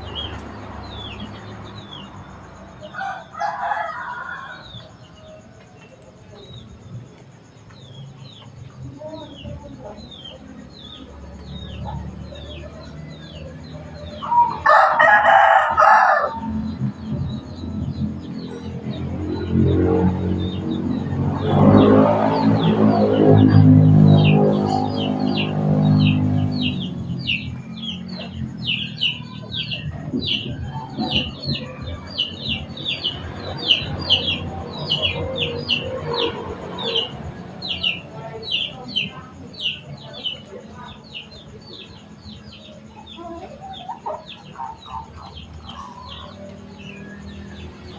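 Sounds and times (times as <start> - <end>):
rooster crowing: 2.8 - 5.5, 14.0 - 16.6
small bird chirping: 22.4 - 47.9.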